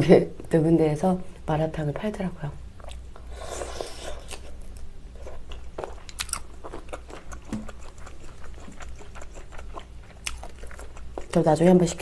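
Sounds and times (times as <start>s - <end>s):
person chewing wet mouth clicks: 5.8s - 11.4s.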